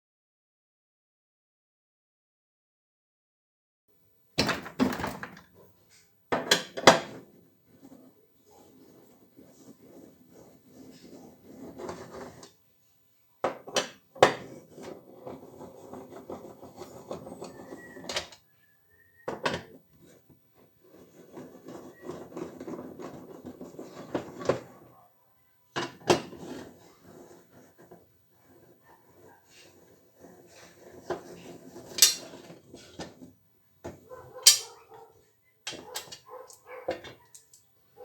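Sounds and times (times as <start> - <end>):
rubbing and scraping: 7.0 - 13.0, 14.1 - 18.4, 19.0 - 25.0, 25.9 - 37.3
knocks and clinks of hard parts: 32.0 - 32.2, 34.4 - 34.7.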